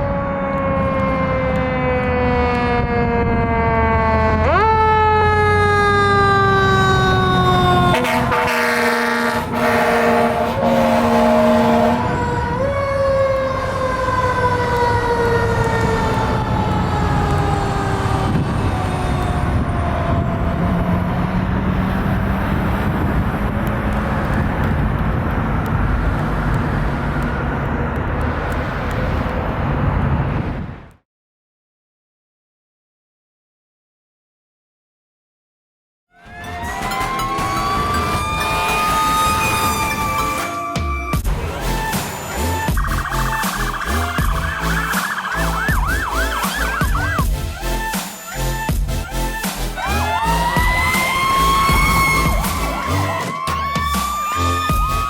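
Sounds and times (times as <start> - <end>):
fire engine siren wailing: 0.0 - 30.3, 36.1 - 55.0
air horn blasts: 7.8 - 12.4, 36.1 - 53.1
truck engine running: 41.2 - 49.8.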